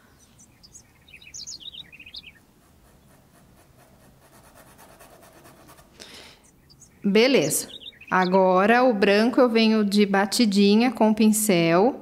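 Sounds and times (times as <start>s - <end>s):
small bird chirping: 0.0s - 4.0s, 6.0s - 8.5s
paintbrush scratching on fabric: 2.5s - 6.0s.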